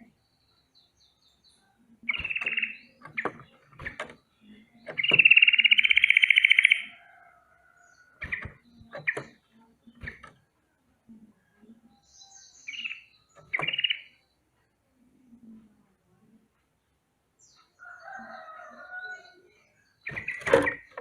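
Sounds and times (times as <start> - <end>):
bird rolling alarm trill: 2.1 - 3.6, 4.9 - 7.0, 12.8 - 14.1.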